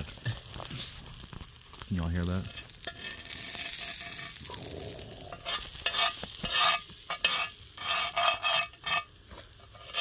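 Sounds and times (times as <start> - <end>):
butter sizzling in a pan: 0.0 - 10.0.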